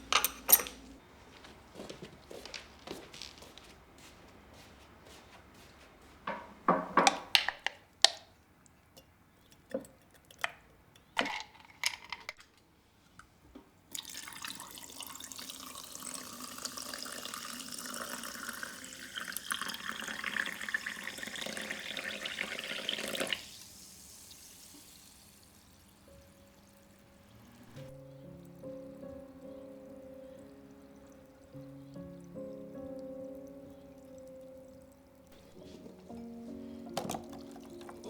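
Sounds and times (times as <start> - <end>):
things clattering: 0.0 - 1.0, 6.2 - 7.8, 11.2 - 12.6, 35.4 - 38.0
tap running into sink: 6.3 - 8.2, 35.3 - 38.0.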